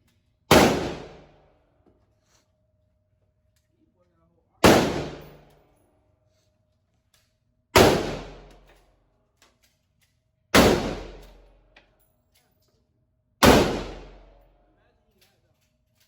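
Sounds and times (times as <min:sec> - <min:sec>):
gunshots with echo: 0:04.6 - 0:05.4, 0:07.8 - 0:08.5, 0:10.6 - 0:11.3, 0:13.4 - 0:14.4.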